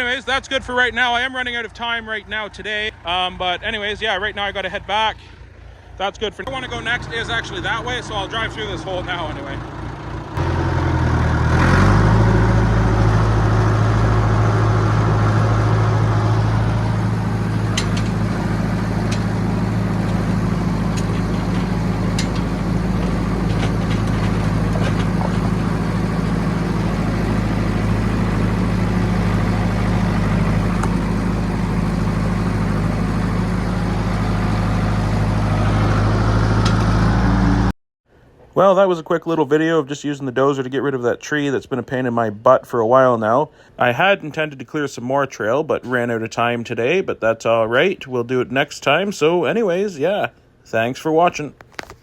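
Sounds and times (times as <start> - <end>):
dozer diesel engine running: 0.0 - 37.7.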